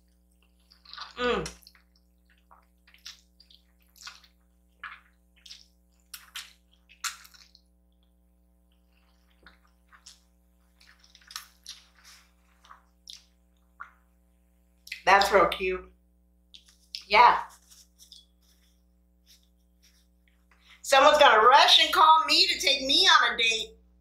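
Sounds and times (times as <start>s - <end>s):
wet chewing and slurping: 0.0s - 8.1s, 8.7s - 14.0s.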